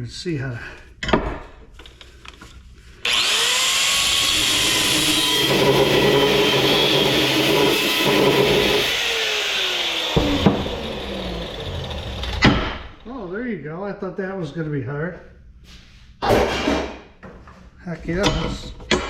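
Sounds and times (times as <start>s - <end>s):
power tool cutting metal: 3.0s - 13.0s.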